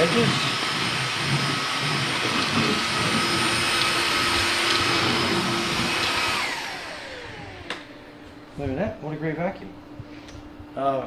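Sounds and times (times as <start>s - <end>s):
vacuum motor winding down: 0.0s - 8.1s
stick vacuum running with whine: 0.0s - 9.5s.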